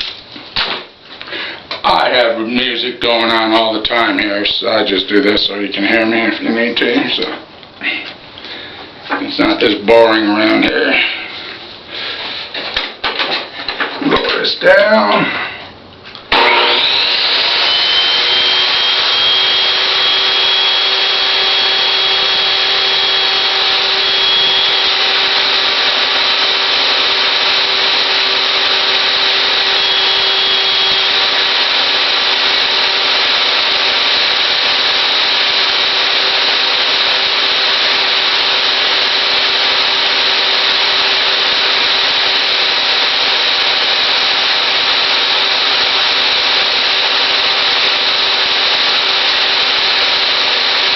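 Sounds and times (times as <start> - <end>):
table saw running: 16.3 - 50.9.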